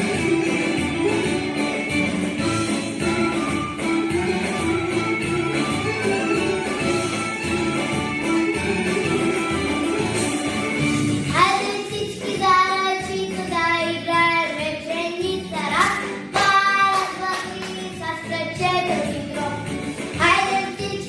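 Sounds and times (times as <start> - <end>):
instrumental backing music: 0.0 - 21.0
girl singing: 11.3 - 21.0.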